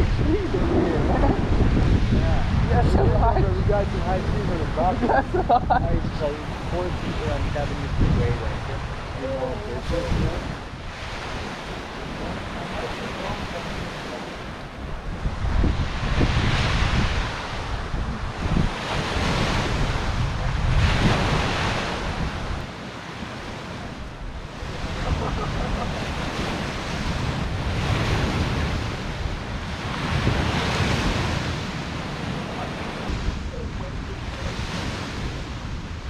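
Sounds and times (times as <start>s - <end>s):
wind gusting against microphone: 0.0s - 36.0s
heavy rain: 16.2s - 35.7s.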